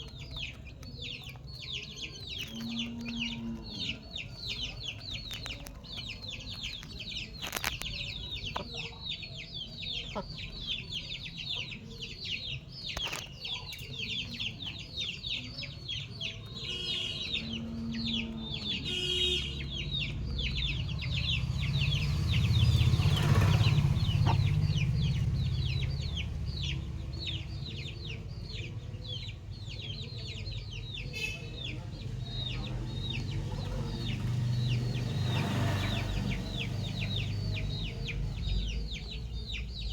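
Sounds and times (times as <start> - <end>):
chickens clucking: 0.0 - 39.8
low rumble: 20.3 - 27.7.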